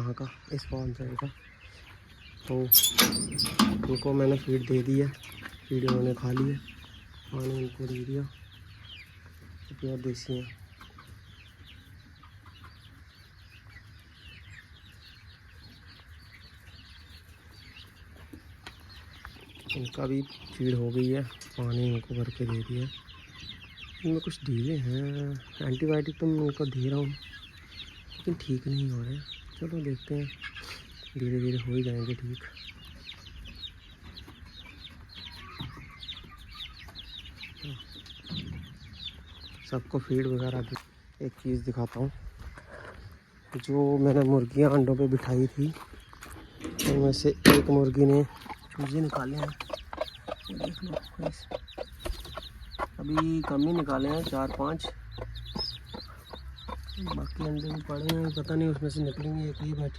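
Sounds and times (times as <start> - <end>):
chickens calling softly: 0.0 - 59.9
low clucks: 47.6 - 59.8.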